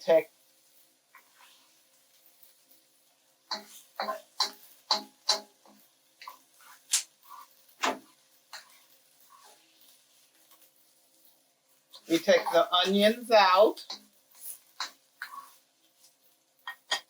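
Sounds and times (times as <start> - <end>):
utensil clinking and scraping pan: 3.5 - 10.6.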